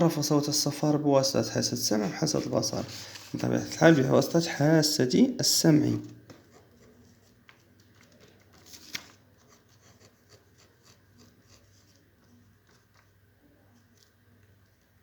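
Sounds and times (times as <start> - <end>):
rustling of handling: 2.2 - 4.0, 6.3 - 15.0.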